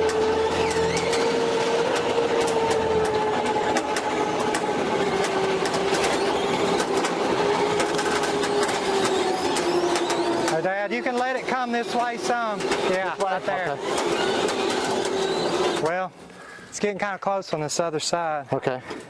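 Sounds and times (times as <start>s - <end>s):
electric winch motor whining: 0.0s - 16.1s
sharp clicks: 7.8s - 11.3s.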